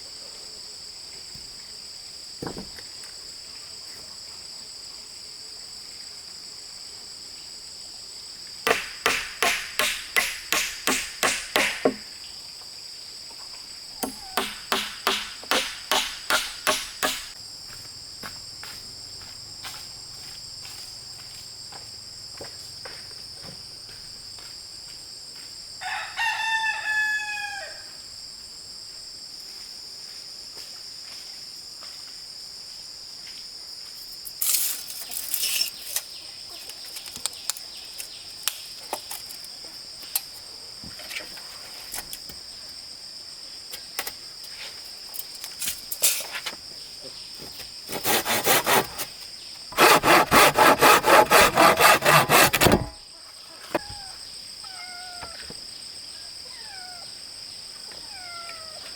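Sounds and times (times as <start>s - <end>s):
sharp knocks: 8.7s - 12.1s, 14.0s - 17.4s, 49.8s - 53.0s
rooster crowing: 25.8s - 28.0s.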